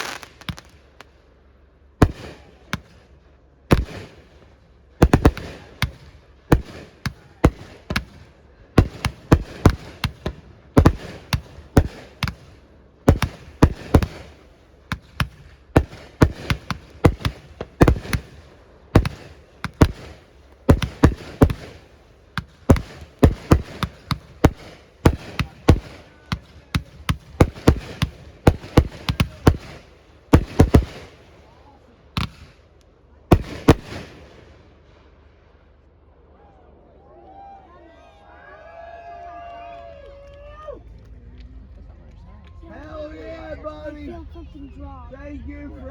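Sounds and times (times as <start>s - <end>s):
fireworks banging: 0.0s - 1.2s, 2.0s - 31.6s, 32.2s - 32.6s, 33.3s - 34.6s.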